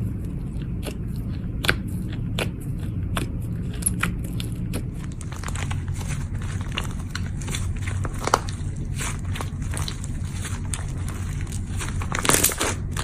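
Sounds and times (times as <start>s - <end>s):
steady low hum: 0.0s - 13.0s
slime crackling and popping: 3.1s - 13.0s.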